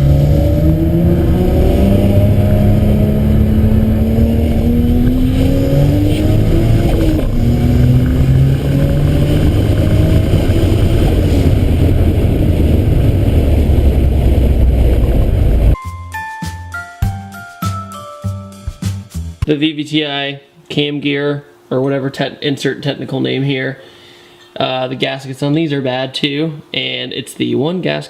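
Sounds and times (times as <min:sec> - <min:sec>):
car engine accelerating hard: 0:00.0 - 0:15.8.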